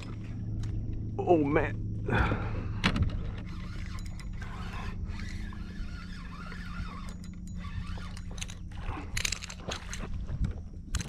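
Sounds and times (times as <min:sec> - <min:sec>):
fishing reel gears whirring: 0:03.0 - 0:11.0.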